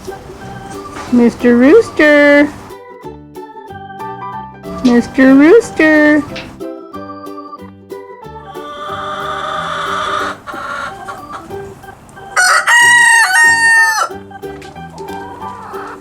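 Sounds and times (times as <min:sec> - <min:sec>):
background music: 0:00.0 - 0:16.0
rooster crowing: 0:08.6 - 0:11.4, 0:12.4 - 0:14.2.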